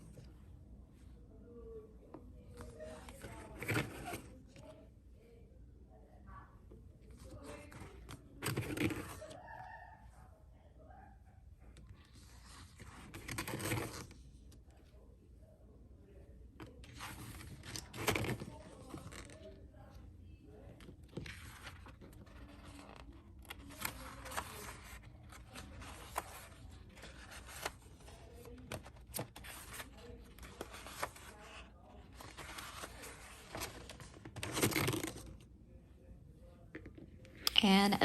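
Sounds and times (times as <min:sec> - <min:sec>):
paper pages rustling: 0:02.5 - 0:04.4, 0:12.0 - 0:14.2, 0:16.6 - 0:19.6, 0:20.8 - 0:35.5.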